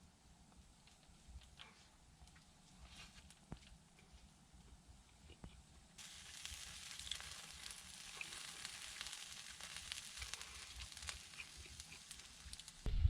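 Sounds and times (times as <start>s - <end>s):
wood fire crackling: 5.5s - 12.9s
meat sizzling on a grill: 6.0s - 12.9s.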